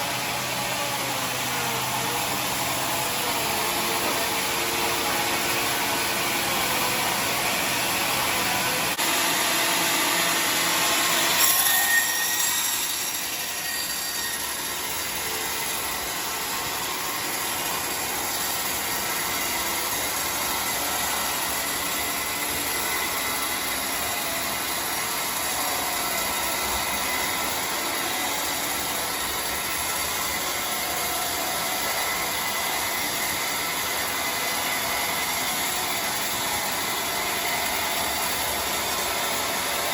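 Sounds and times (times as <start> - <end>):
sawmill saw cutting log: 0.0 - 39.9
saw screech: 9.7 - 38.6.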